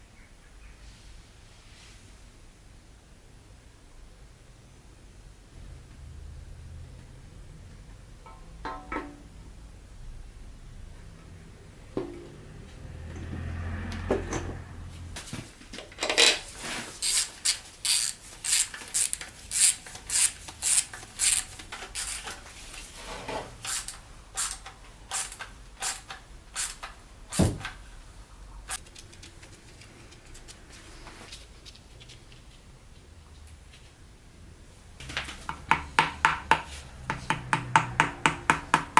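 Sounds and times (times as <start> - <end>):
tools clicking and knocking: 15.8 - 22.4, 35.0 - 38.9.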